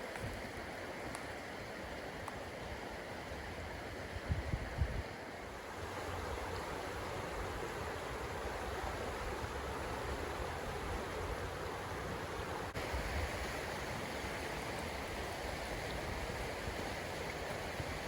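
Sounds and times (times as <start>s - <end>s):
stream water rushing: 0.0s - 18.0s
wind rumble on microphone: 3.5s - 5.2s.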